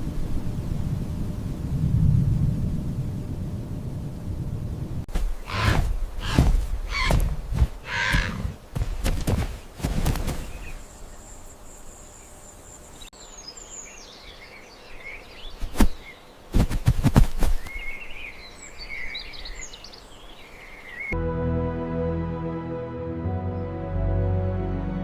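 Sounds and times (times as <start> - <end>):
loud thuds: 5.1 - 10.7
high insect buzz: 5.1 - 21.1
birds chirping: 5.1 - 21.2
music: 21.2 - 25.0.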